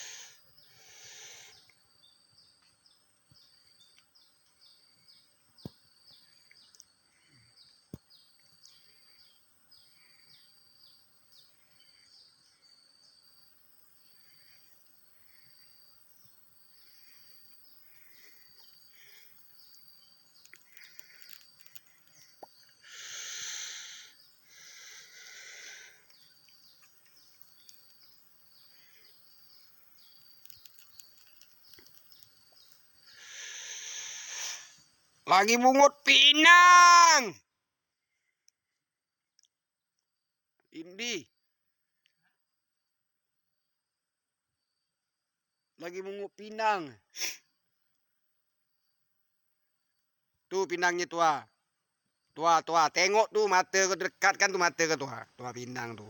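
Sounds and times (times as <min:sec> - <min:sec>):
birds chirping: 0:00.0 - 0:36.8
harsh rasping bird calls: 0:00.0 - 0:36.8.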